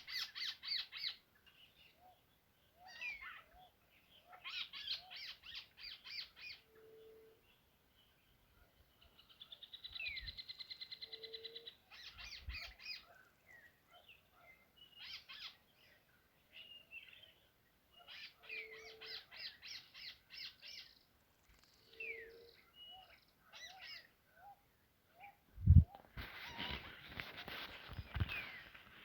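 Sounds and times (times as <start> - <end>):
bird low hoot: 11.0 - 12.0, 21.9 - 24.6.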